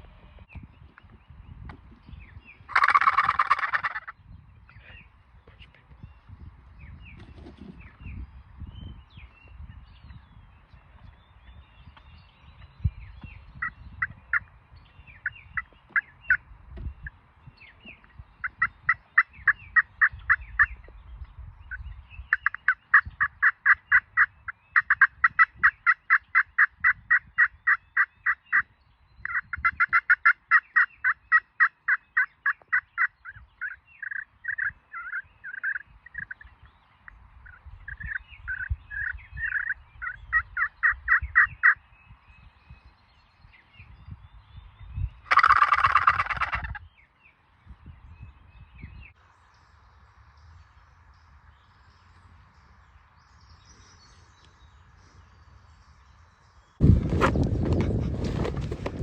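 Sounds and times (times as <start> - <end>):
low rumble of wind: 0.0 - 59.0
turkey yelping: 2.7 - 4.1, 29.3 - 36.4, 37.5 - 41.8, 45.3 - 46.8.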